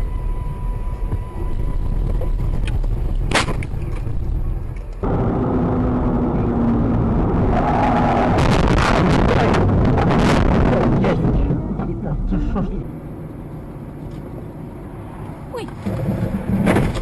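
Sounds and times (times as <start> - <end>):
car driving rumble: 0.0 - 17.0
sharp cracks and knocks: 2.6 - 4.1, 15.8 - 17.0.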